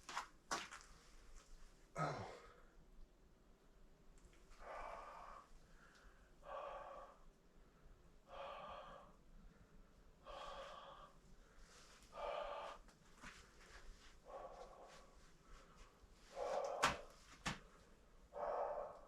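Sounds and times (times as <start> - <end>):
person breathing: 4.6 - 19.0.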